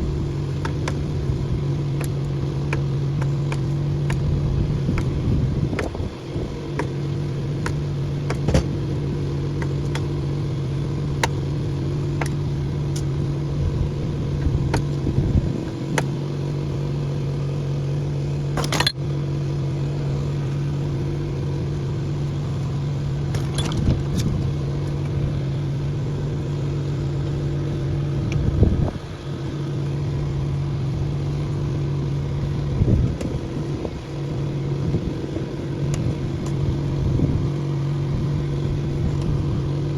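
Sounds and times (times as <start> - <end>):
metallic clicks and knocks: 23.3 - 24.3.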